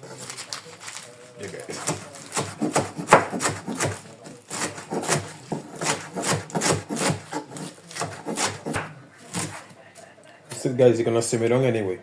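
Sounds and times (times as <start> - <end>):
knife chopping on cutting board: 1.7 - 9.8
knife scraping board: 1.7 - 9.8.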